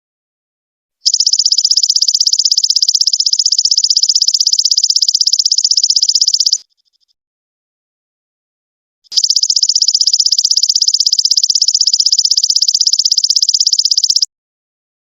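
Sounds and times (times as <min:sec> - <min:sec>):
insect pulsing buzz: 0:01.0 - 0:06.6, 0:09.1 - 0:14.2.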